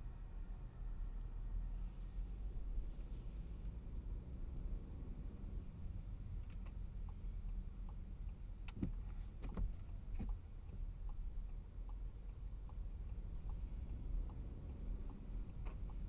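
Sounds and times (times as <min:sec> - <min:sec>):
car driving rumble: 0:00.0 - 0:16.0
faint regular ticks: 0:06.4 - 0:16.0.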